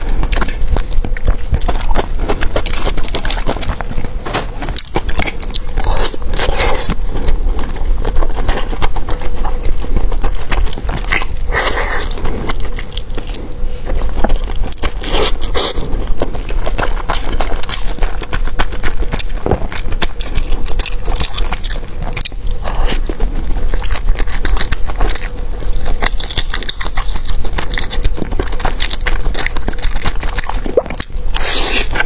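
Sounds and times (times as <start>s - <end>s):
bites and slurps: 0.0s - 32.0s
person chewing noodles: 0.0s - 32.0s.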